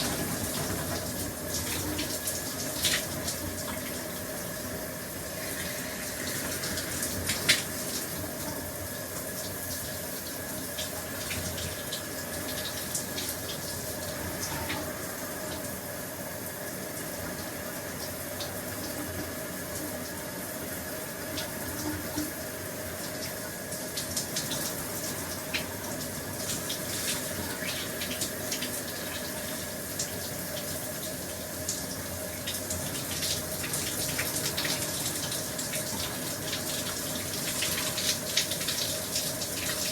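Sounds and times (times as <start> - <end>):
shower spray hissing: 0.0 - 8.2
faint steady hum: 0.0 - 39.9.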